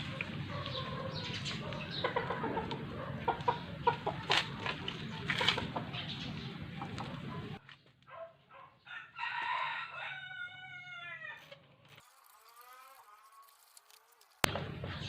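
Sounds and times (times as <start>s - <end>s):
rooster crowing: 8.9s - 11.5s.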